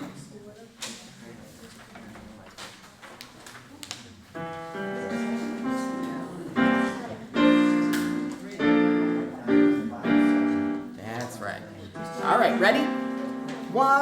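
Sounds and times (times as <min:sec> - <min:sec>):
piano chords: 0:04.4 - 0:11.0, 0:11.9 - 0:14.0.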